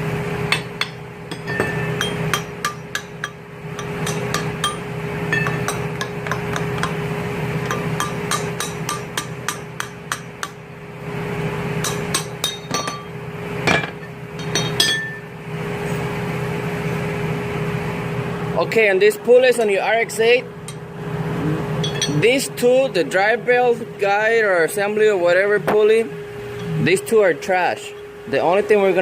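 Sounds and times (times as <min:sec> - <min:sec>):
steady hum: 0:00.0 - 0:29.0
wrench and bolts clinking on metal: 0:21.8 - 0:22.2.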